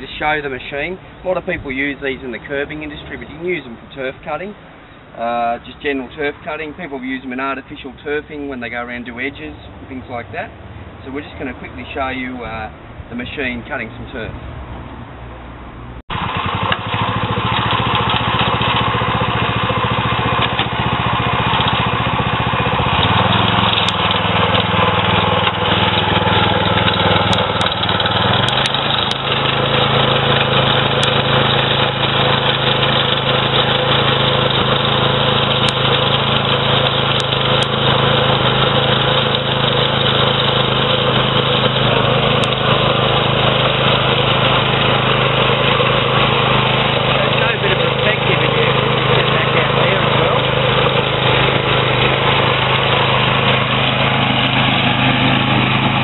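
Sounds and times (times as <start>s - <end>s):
sod cutter engine running: 16.1s - 56.0s.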